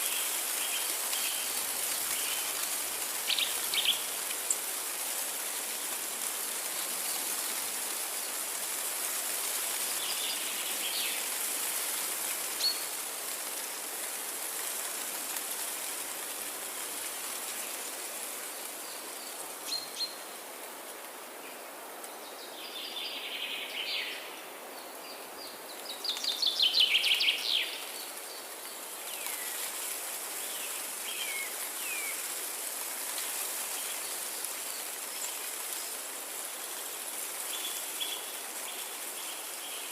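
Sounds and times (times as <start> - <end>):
songbirds calling: 0.0 - 4.7
steady background hiss: 0.0 - 39.9.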